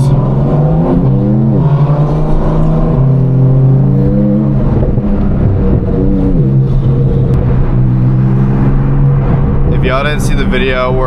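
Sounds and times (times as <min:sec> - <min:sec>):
sports car engine revving: 0:00.0 - 0:11.0.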